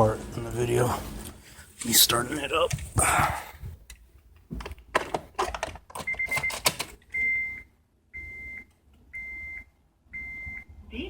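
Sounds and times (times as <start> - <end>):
dashboard warning chime beeping: 6.1 - 10.7.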